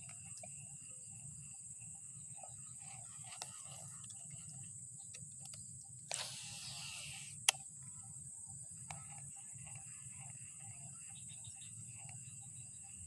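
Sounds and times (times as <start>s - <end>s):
high insect buzz: 0.0s - 13.0s
sharp click: 5.1s - 7.6s.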